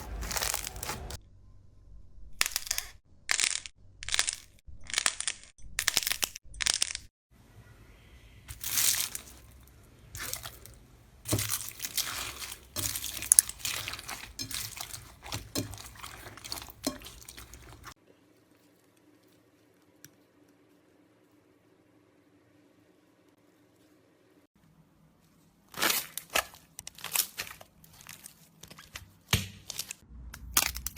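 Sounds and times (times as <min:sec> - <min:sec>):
slime crunching and crackling: 0:00.0 - 0:01.2, 0:08.5 - 0:18.0, 0:25.7 - 0:30.9
wet squishing: 0:08.5 - 0:20.0.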